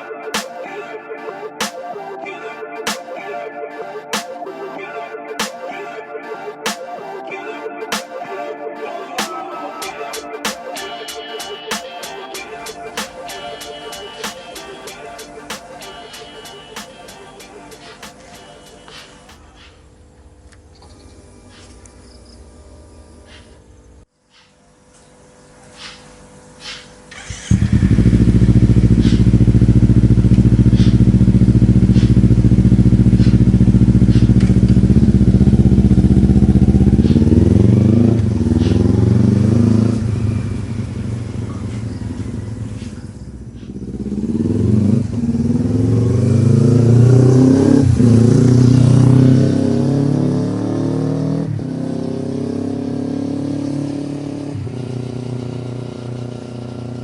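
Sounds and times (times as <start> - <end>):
motorcycle engine revving: 26.2 - 57.0.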